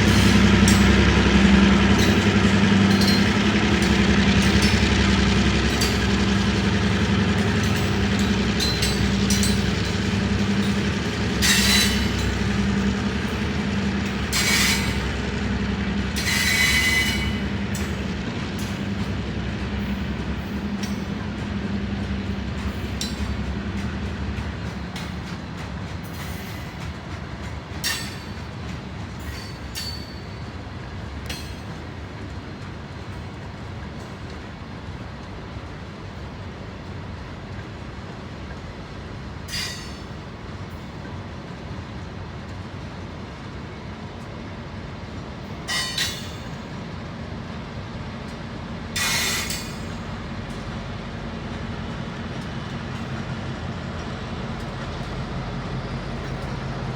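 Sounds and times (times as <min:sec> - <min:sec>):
train wheels squealing: 0:00.0 - 0:30.7, 0:39.5 - 0:41.2, 0:45.4 - 0:47.3, 0:48.3 - 0:51.0
wheels clicking over rail joints: 0:00.0 - 0:35.4, 0:39.4 - 0:42.8, 0:45.2 - 0:47.6, 0:48.2 - 0:56.9
diesel locomotive drone: 0:00.0 - 0:56.9.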